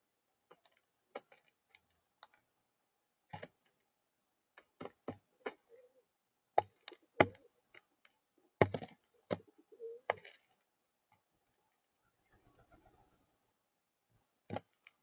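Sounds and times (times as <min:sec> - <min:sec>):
birds pecking knocks: 0:06.6 - 0:07.8, 0:08.6 - 0:10.4.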